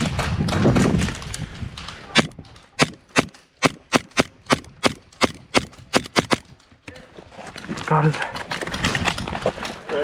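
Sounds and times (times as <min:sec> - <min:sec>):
airsoft gun shots: 0:02.2 - 0:06.5.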